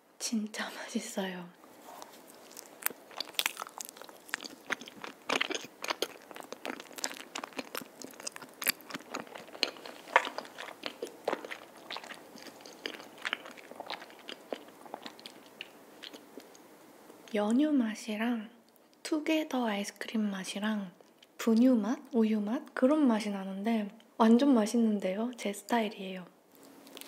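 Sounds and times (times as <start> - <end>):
mouth clicks and smacks chewing: 2.0 - 16.6.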